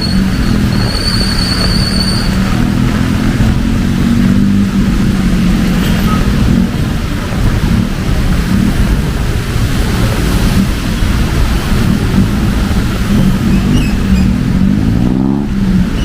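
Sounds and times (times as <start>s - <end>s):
high thin squeal: 0.0s - 2.7s
heavy rain: 0.0s - 16.0s.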